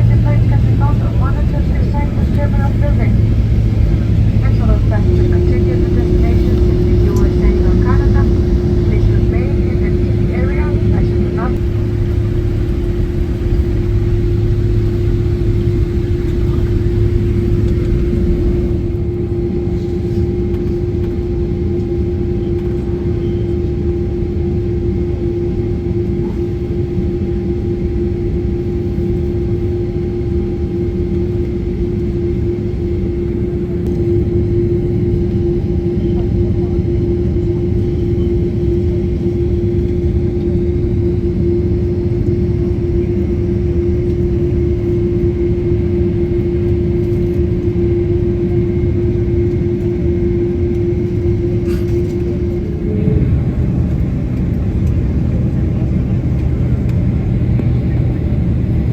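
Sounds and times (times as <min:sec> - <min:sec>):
vehicle running rumble: 0:00.0 - 0:21.2.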